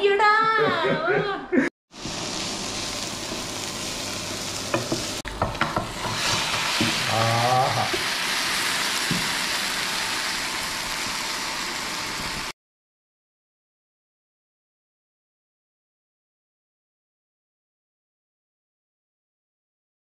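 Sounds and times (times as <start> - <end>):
food sizzling in a pan: 1.9 - 12.6
wooden spoon scraping a pan: 4.7 - 7.2.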